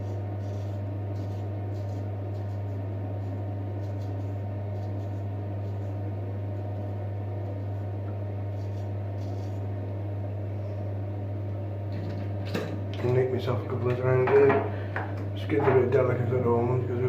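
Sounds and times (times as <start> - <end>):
steady low hum: 0.0 - 17.0
razor scraping stubble: 0.4 - 6.9, 8.4 - 9.8.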